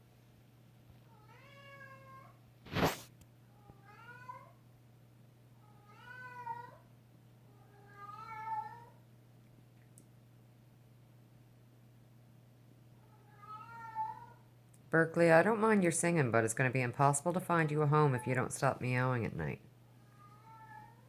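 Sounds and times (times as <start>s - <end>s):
cat meowing: 1.2s - 2.3s, 5.8s - 6.8s, 7.6s - 9.0s, 13.1s - 14.4s, 20.0s - 21.0s.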